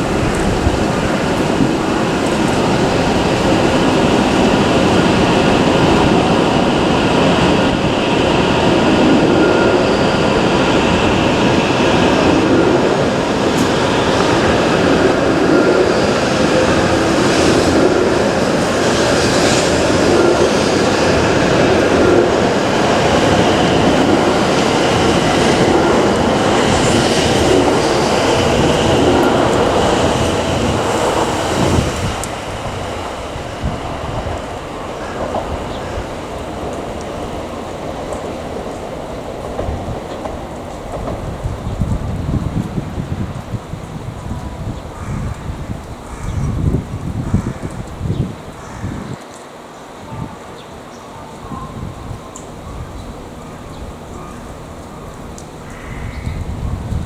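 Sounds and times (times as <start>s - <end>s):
train wheels and machinery rumble: 0.0s - 57.0s.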